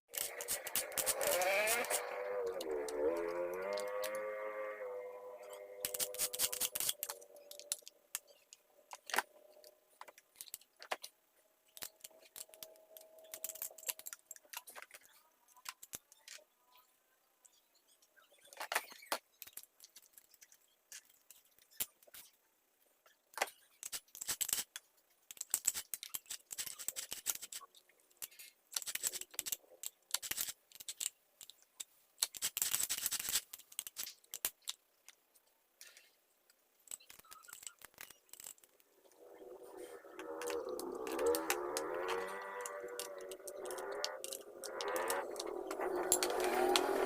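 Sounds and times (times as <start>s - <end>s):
metal parts clicking and knocking: 0.1s - 4.2s, 5.4s - 11.1s, 11.7s - 16.4s, 23.4s - 35.2s, 36.8s - 47.0s.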